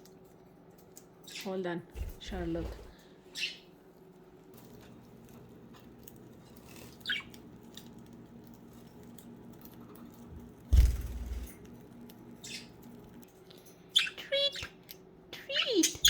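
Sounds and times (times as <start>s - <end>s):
budgies pecking and scratching: 0.0s - 16.0s
loud thump with low rumble: 10.7s - 11.5s.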